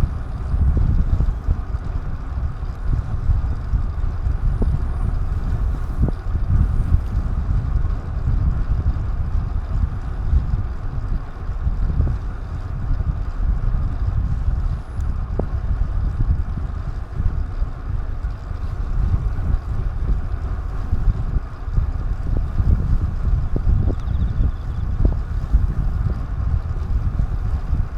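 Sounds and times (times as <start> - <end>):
wind buffeting microphone: 0.0 - 27.9
faint ticks: 23.9 - 24.8.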